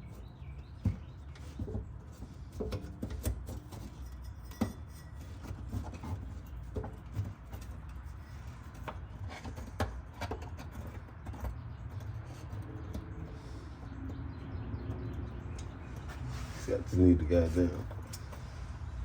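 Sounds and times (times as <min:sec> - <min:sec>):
clicks and taps on car parts: 0:08.7 - 0:13.2.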